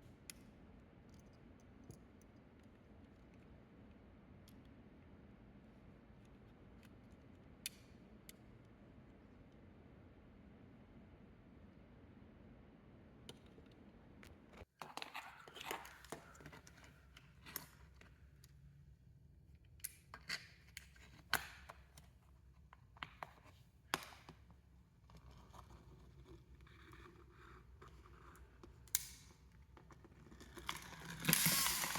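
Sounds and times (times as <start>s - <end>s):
small hard objects clicking: 30.6s - 31.9s.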